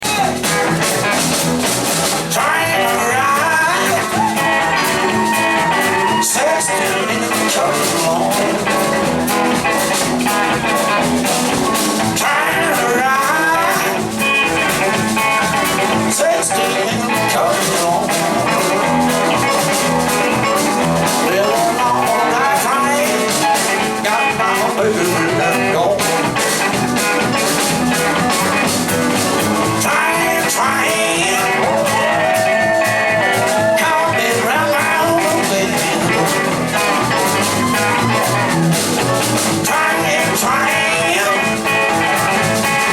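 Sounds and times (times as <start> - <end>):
blues-rock band playing: 0.0 - 42.9
electric guitar lead lines: 0.0 - 42.9.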